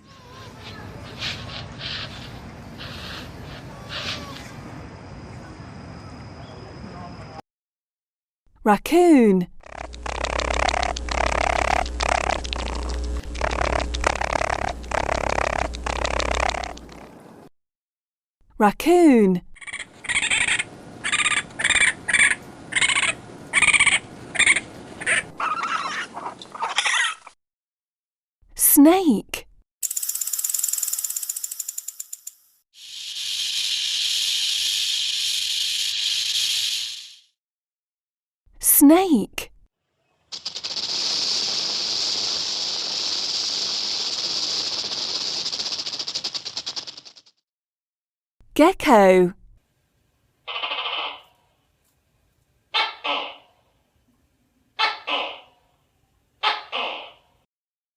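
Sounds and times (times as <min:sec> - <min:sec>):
raccoon high calls: 0:00.1 - 0:04.5, 0:19.6 - 0:27.3, 0:50.5 - 0:51.4, 0:52.7 - 0:53.6, 0:54.8 - 0:55.7, 0:56.4 - 0:57.2
rattlesnake rattling: 0:09.6 - 0:17.0, 0:29.8 - 0:37.3, 0:40.3 - 0:47.4
steady hiss: 0:40.4 - 0:46.8.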